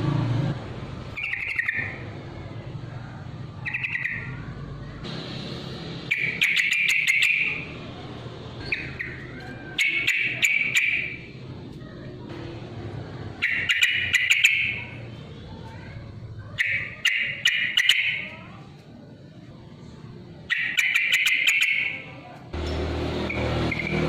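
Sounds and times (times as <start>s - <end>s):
bulbul singing bubbly song: 1.2s - 2.1s, 13.4s - 15.2s.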